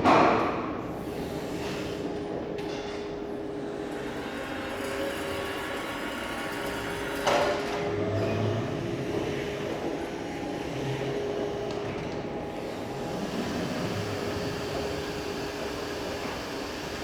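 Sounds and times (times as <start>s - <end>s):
electric truck humming whine: 4.8s - 17.0s.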